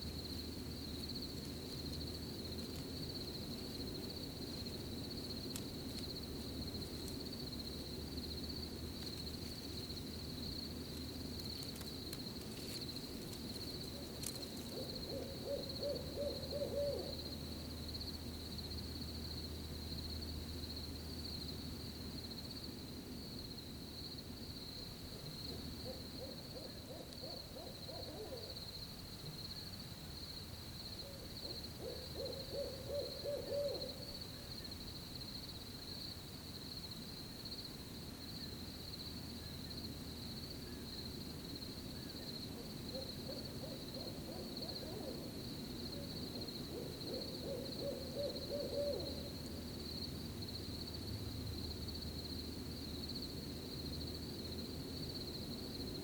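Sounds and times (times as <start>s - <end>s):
crickets chirping: 0.0s - 56.0s
owl hooting: 13.9s - 17.3s, 25.5s - 28.6s, 31.0s - 34.5s, 42.0s - 45.4s, 46.0s - 49.4s.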